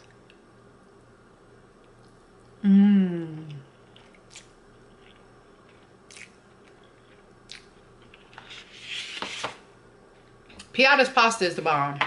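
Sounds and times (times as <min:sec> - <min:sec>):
person humming: 0:02.6 - 0:03.7
person chewing: 0:03.2 - 0:08.4.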